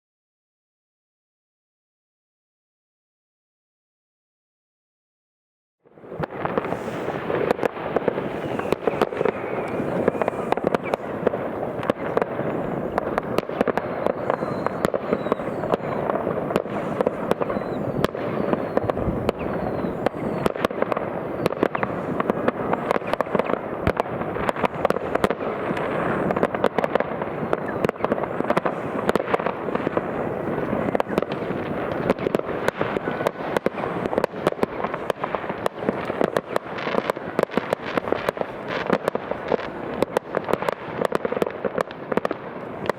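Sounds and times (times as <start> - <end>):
firecrackers crackling: 5.9 - 42.9
fireworks bangs: 5.9 - 42.9.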